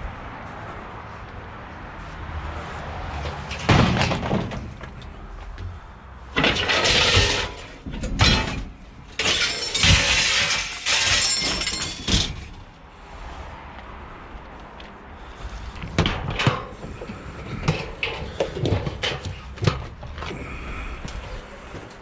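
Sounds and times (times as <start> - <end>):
scrap metal clattering: 3.2 - 12.7, 15.6 - 20.7.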